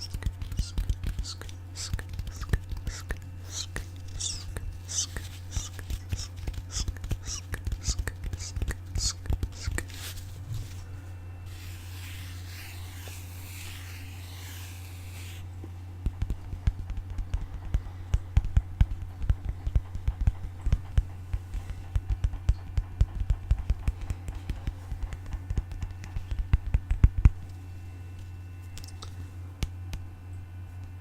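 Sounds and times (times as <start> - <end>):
low steady hum: 0.0 - 31.0
fast irregular tapping: 16.0 - 27.2.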